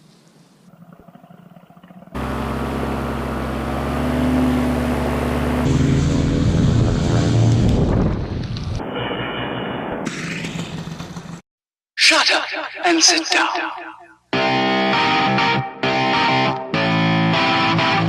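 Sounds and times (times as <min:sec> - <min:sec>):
paramotor engine droning: 0:00.6 - 0:08.8.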